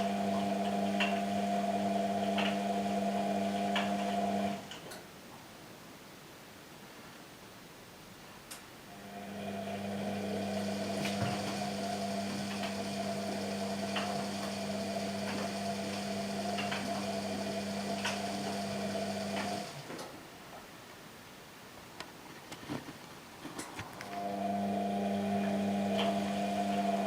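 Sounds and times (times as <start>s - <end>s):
washing machine motor humming: 0.0s - 4.7s, 9.0s - 19.9s, 23.5s - 27.0s.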